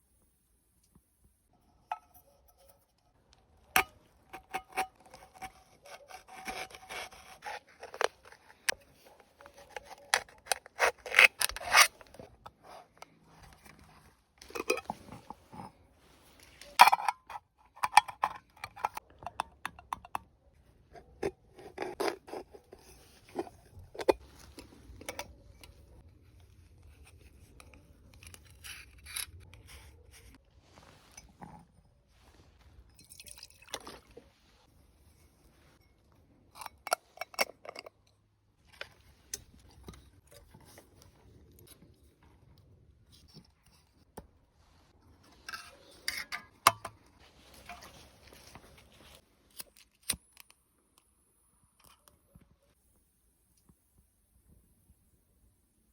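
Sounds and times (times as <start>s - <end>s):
tools scraping and rubbing: 1.6s - 19.4s, 20.8s - 32.6s, 43.2s - 49.8s.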